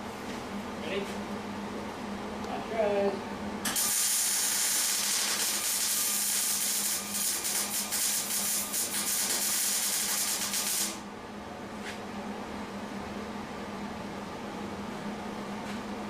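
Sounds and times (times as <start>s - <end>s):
welder arc sizzling: 3.7s - 11.0s.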